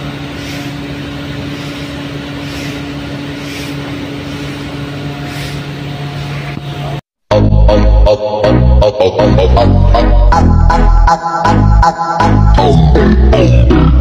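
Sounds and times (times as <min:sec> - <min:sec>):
diesel generator engine running: 0:00.0 - 0:14.0.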